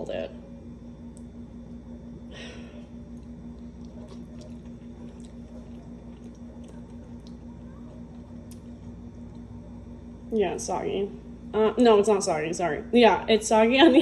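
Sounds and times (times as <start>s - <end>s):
steady low hum: 0.0s - 14.0s
person chewing squishy food: 2.9s - 9.8s.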